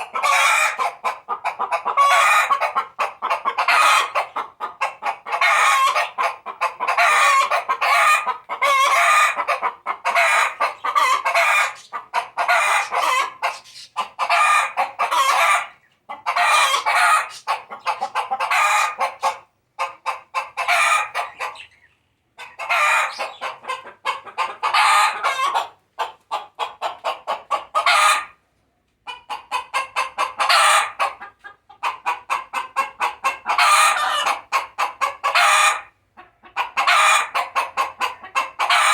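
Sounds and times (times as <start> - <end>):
hen cackling: 0.0 - 28.4, 29.1 - 38.9.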